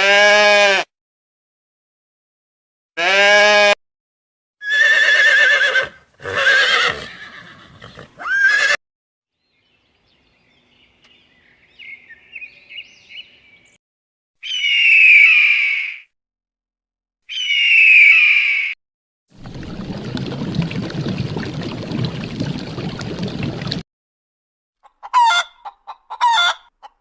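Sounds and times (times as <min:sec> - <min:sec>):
horse whinnying: 0:04.6 - 0:08.8.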